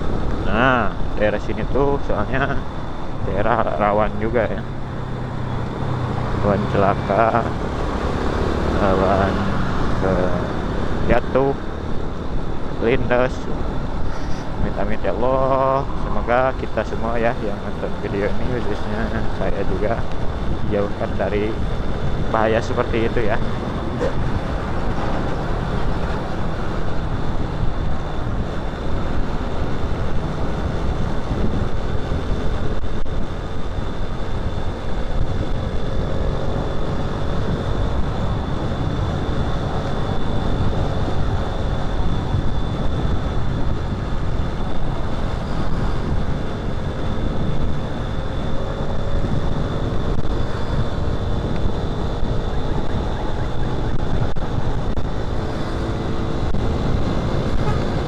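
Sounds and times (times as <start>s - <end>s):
wind rushing over microphone: 0.0s - 58.0s
motorcycle engine running: 17.6s - 58.0s.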